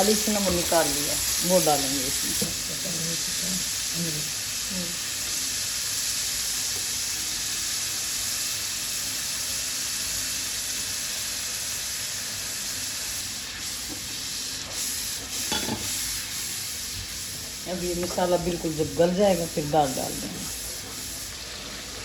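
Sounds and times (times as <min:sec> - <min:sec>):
masala sizzling in hot oil: 0:00.0 - 0:22.0.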